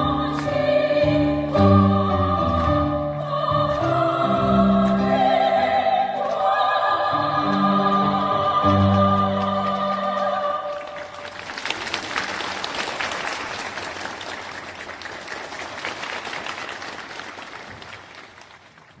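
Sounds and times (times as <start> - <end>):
vocal ensemble sung chord: 0.0 - 11.4
audience applauding: 6.2 - 19.0.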